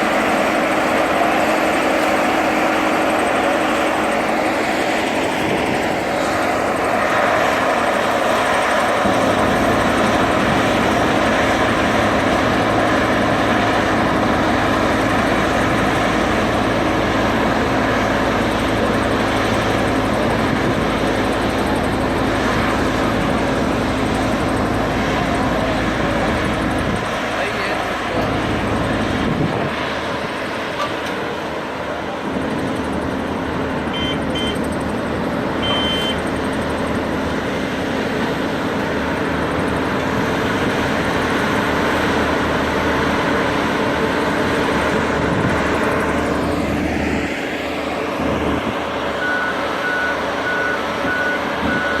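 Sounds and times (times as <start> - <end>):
construction machinery engine: 0.0 - 52.0
truck reversing alarm beeping: 33.8 - 34.9, 35.5 - 36.8, 46.8 - 52.0
short high beeps: 34.0 - 34.6, 35.6 - 36.2.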